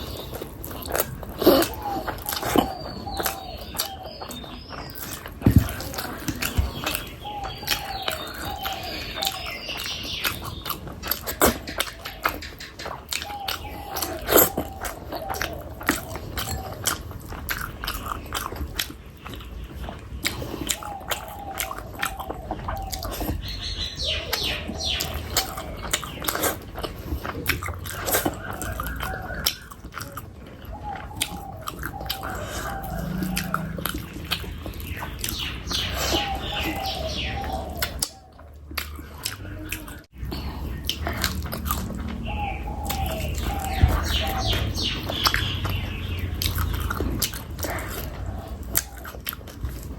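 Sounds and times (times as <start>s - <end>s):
mouth clicks and smacks: 0.0s - 23.6s, 37.8s - 42.2s
wet chewing and biting: 0.0s - 49.9s.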